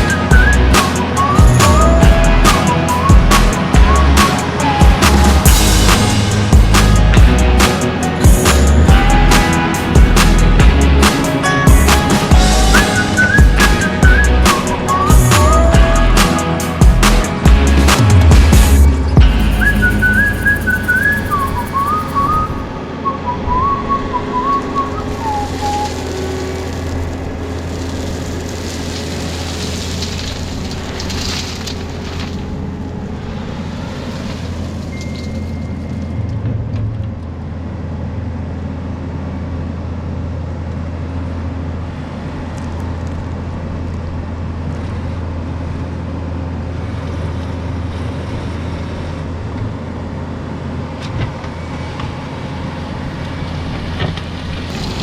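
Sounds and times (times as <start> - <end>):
person whistling a tune: 0.0 - 6.2, 11.4 - 16.6, 19.2 - 26.2
skid steer engine drone: 0.0 - 55.0.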